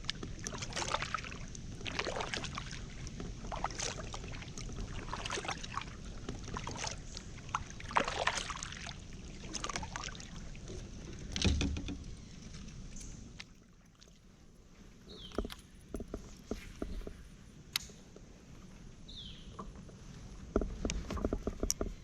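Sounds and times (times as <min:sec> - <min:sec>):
paddle splashing in water: 0:00.0 - 0:17.2
low thump: 0:11.4 - 0:12.2.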